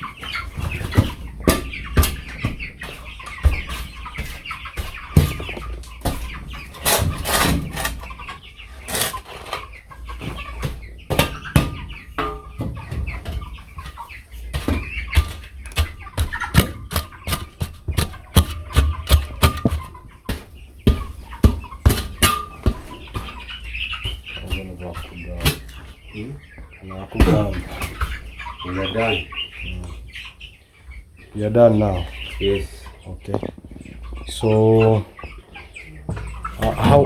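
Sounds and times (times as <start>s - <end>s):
sharp knocks and scrapes: 0.0s - 29.2s
chickens clucking: 0.0s - 37.0s.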